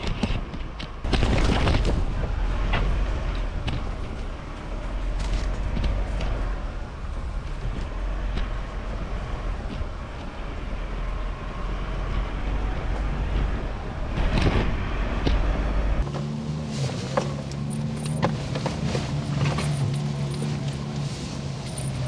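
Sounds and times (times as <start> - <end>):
knocks and rattles: 0.0 - 6.8
vehicle rumble: 0.0 - 22.0.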